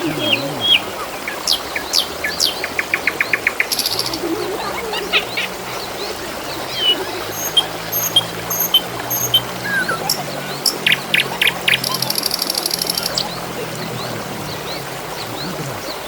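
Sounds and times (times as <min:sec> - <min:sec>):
small birds chirping and whistling: 0:00.0 - 0:16.0
trickling water: 0:00.0 - 0:16.0
rapid ticks: 0:01.5 - 0:04.4, 0:06.9 - 0:15.4.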